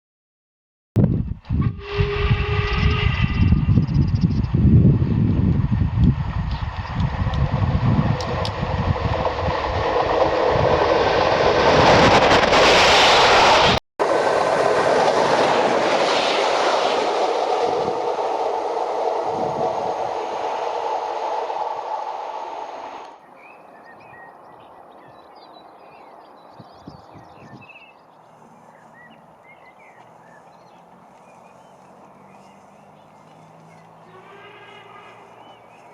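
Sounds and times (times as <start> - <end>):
steam locomotive passing: 1.5 - 23.4, 28.1 - 35.9
faint birdsong: 23.2 - 35.9.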